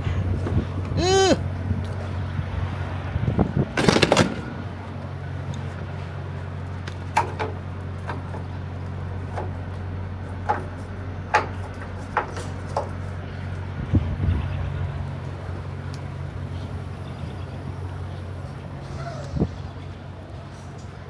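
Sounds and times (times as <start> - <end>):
loud clatter: 3.7 - 5.1
diesel truck engine idling: 14.8 - 21.0.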